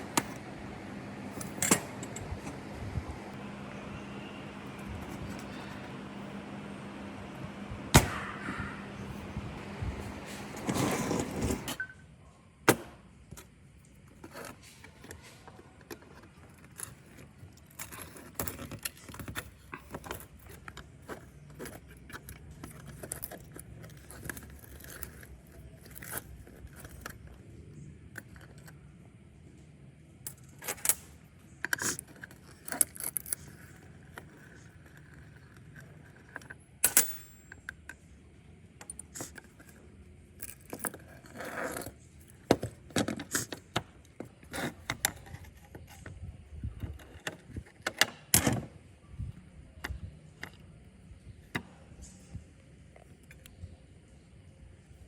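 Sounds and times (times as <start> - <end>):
small metal parts clinking: 15.9 - 27.4, 38.8 - 43.7.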